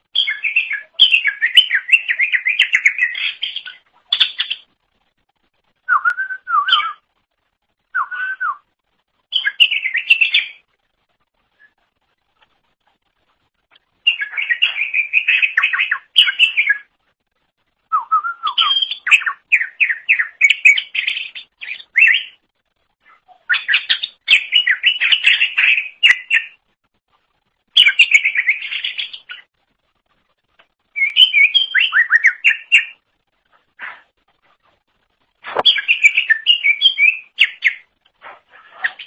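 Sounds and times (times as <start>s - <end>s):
bird singing chirps and whistles: 0.1s - 4.7s, 5.9s - 7.1s, 7.9s - 8.7s, 9.3s - 10.6s, 14.0s - 16.9s, 17.9s - 22.4s, 23.1s - 26.6s, 27.8s - 29.5s, 30.9s - 33.0s, 35.5s - 37.9s.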